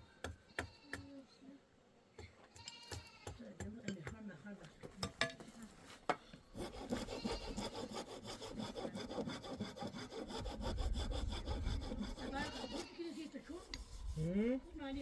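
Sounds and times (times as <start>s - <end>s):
saw cutting through wood: 6.6s - 14.9s.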